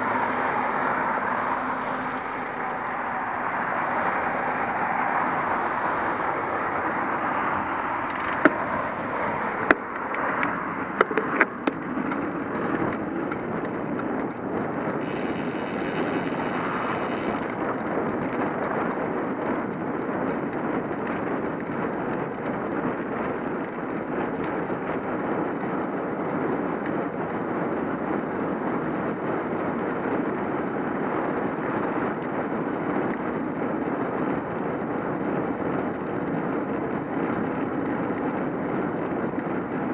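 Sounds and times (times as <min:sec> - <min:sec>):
bicycle tyres on road: 0:00.0 - 0:39.9
wind on microphone: 0:00.0 - 0:39.9
sharp clicks or knocks: 0:08.0 - 0:08.7, 0:09.6 - 0:13.8.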